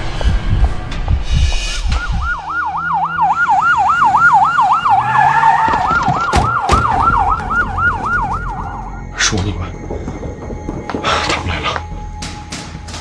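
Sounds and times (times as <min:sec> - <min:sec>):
police siren yelping: 0:02.0 - 0:10.0.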